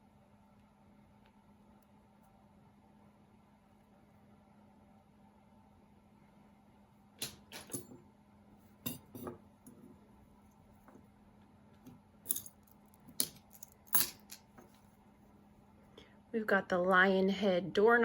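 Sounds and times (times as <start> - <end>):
jewelry clinking and rattling: 8.8 - 9.8, 12.2 - 14.8.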